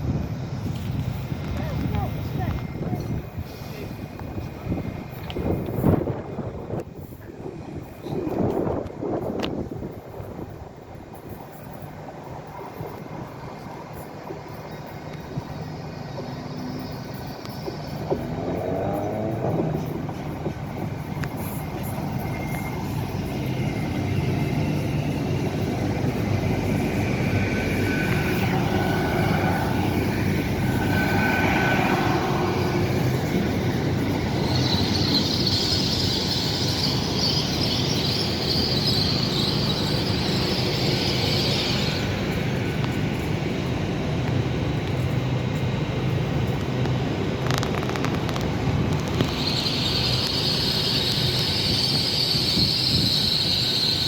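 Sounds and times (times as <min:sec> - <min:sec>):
train low rumble: 0:00.0 - 0:54.0
high squeal: 0:12.5 - 0:43.3, 0:48.8 - 0:54.0.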